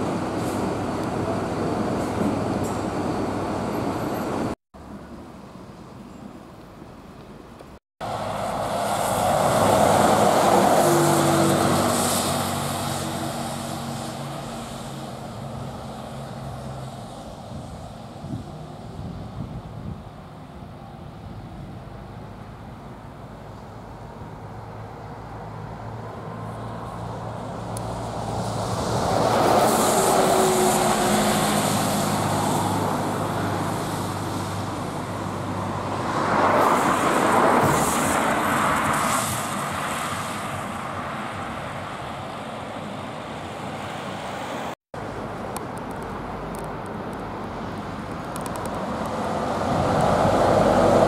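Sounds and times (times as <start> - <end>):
vehicle passing: 8.0 - 17.8, 24.4 - 44.8, 49.0 - 51.0.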